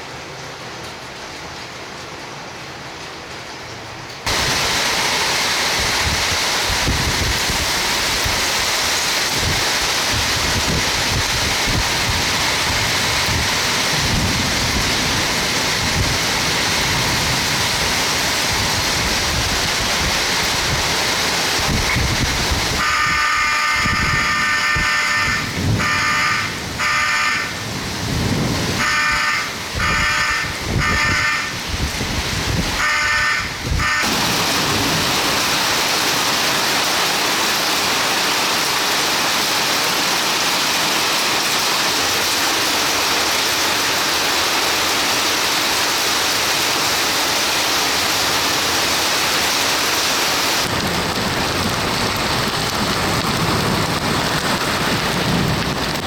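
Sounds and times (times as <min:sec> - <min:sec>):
heavy rain: 0:00.0 - 0:56.0
gusting wind: 0:04.2 - 0:39.4, 0:47.7 - 0:56.0
fire alarm electronic tone: 0:22.8 - 0:27.5.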